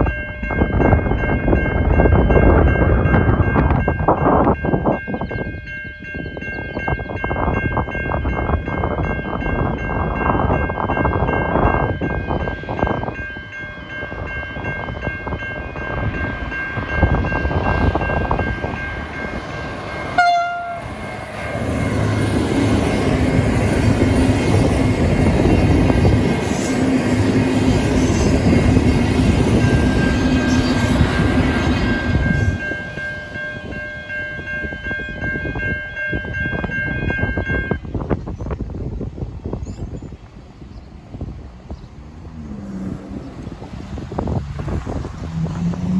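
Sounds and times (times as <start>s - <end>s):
train engine drone: 0.0s - 45.9s
train wheel noise: 0.0s - 45.9s
train horn blast: 20.1s - 21.2s
level crossing bells ringing: 31.2s - 37.8s.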